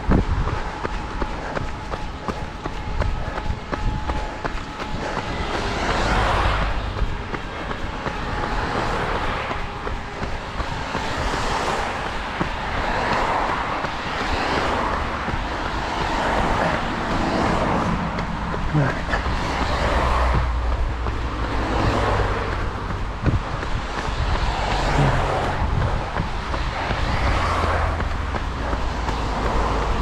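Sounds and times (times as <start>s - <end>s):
vehicles passing: 0.0s - 30.0s.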